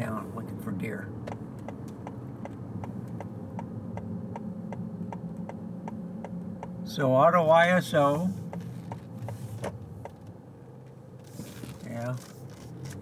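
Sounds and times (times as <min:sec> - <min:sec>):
low hum of car cabin: 0:00.0 - 0:13.0
car turn signal clicking: 0:01.2 - 0:06.8, 0:08.4 - 0:11.0.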